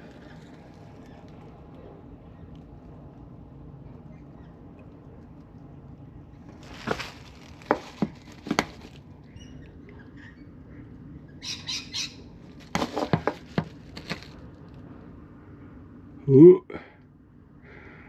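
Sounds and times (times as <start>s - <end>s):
short scuffing sounds: 12.6s - 14.3s.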